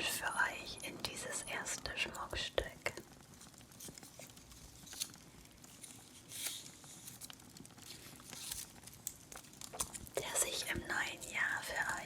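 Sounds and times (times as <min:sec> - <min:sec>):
fireplace fire crackling: 0:00.0 - 0:12.0
ornament rustling: 0:03.3 - 0:12.0.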